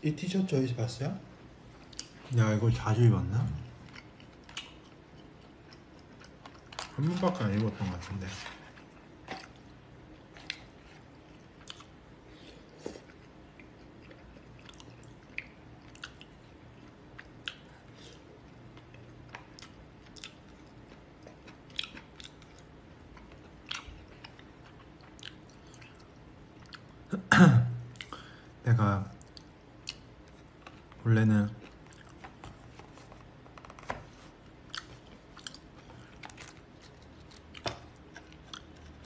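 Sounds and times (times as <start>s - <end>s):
person chewing and biting: 8.8s - 26.9s, 31.6s - 32.8s, 34.5s - 39.0s.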